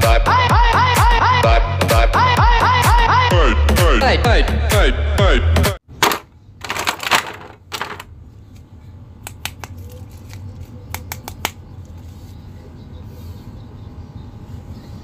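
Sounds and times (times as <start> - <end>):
sharp plastic clicks: 10.4 - 11.6.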